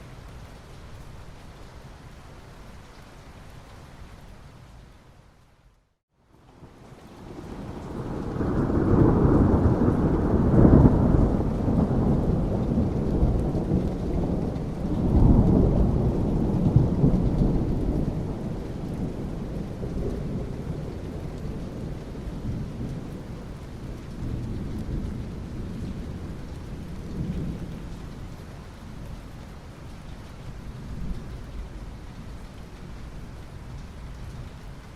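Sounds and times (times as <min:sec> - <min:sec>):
steady rain: 0:00.0 - 0:34.9
thunder rumbling: 0:07.3 - 0:28.4.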